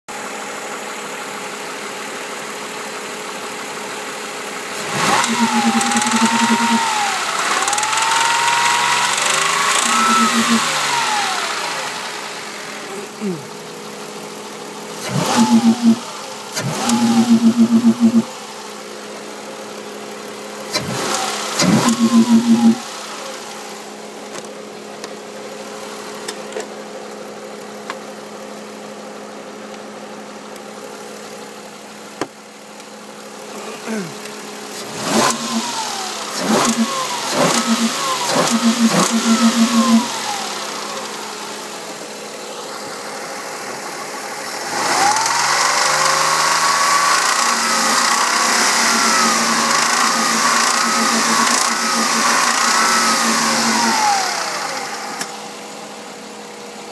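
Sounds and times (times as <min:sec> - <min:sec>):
car engine idling and revving: 0:00.1 - 0:56.9
fast rattling engine knock: 0:05.1 - 0:06.9.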